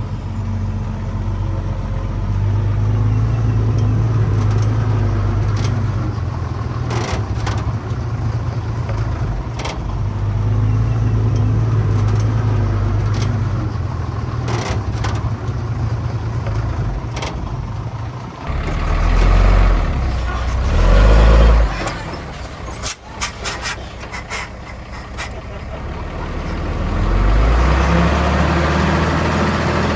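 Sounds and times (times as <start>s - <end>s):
diesel machinery droning: 0.0s - 29.9s.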